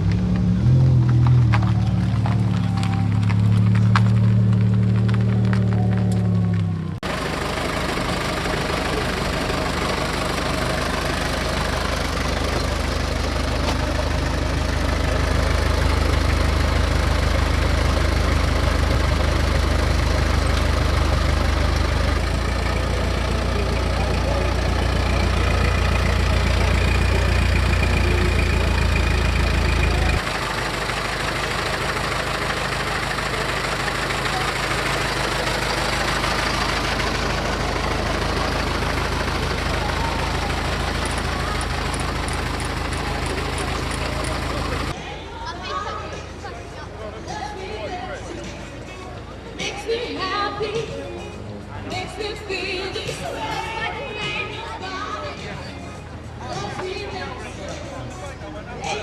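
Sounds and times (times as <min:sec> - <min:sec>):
car engine idling: 0:00.0 - 0:45.0.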